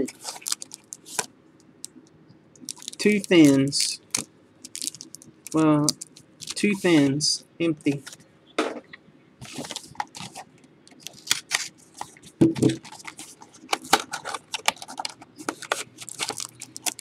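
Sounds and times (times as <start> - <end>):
trading cards and wrappers rustling: 0.0 - 1.3, 2.6 - 7.2, 9.4 - 17.0.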